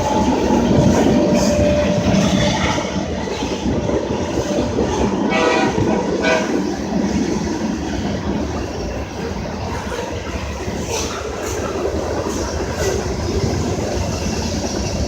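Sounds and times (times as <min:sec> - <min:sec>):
train rumbling past: 0:00.0 - 0:15.0
train horn blasts: 0:05.2 - 0:06.7.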